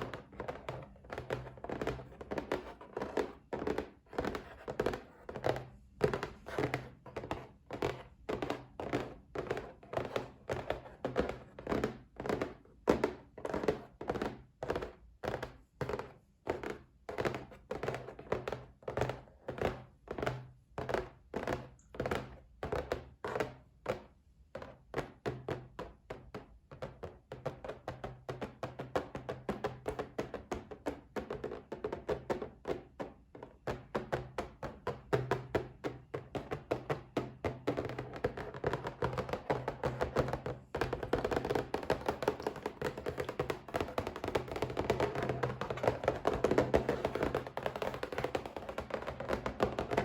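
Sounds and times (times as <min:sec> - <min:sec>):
tapping on a box: 0:27.7 - 0:50.0.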